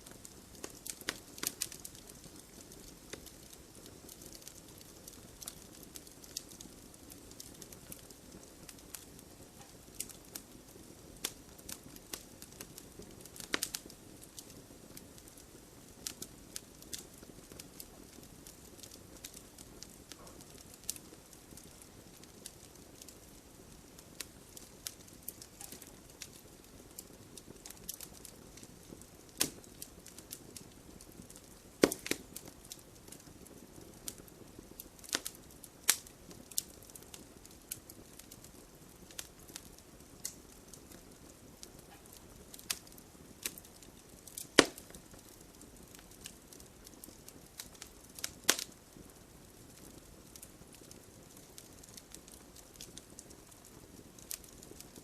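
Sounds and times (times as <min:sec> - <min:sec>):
loud pops of burning wood: 0:00.0 - 0:55.0
wood logs crackling in fireplace: 0:00.0 - 0:55.0.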